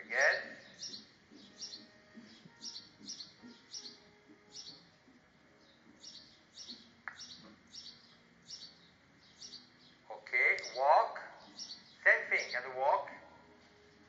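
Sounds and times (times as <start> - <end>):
small birds chirping: 0.0 - 13.3.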